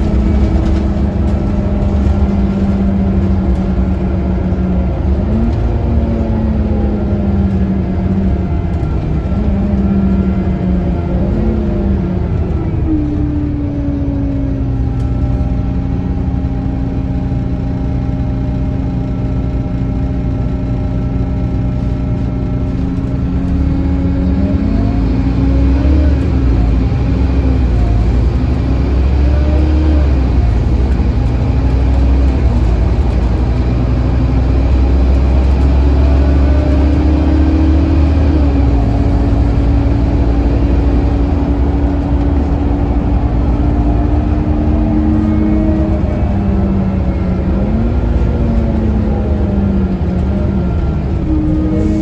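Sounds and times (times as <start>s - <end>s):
bus engine running: 0.0s - 52.0s.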